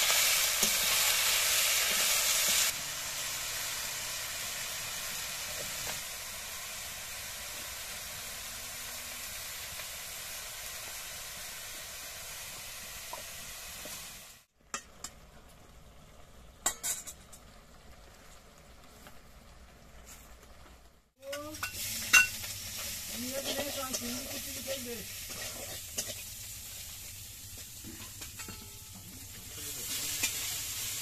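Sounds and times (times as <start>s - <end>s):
vegetables sizzling in a wok: 0.0s - 31.0s
spatula stirring in a wok: 21.2s - 31.0s.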